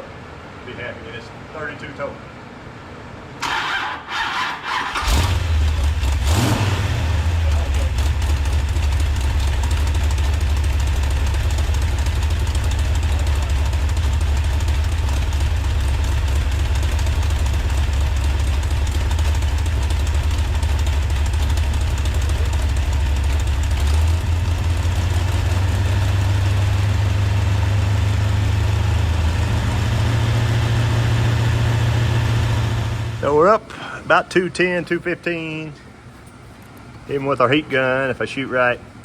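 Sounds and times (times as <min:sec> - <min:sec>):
engine idling: 0:03.4 - 0:34.0.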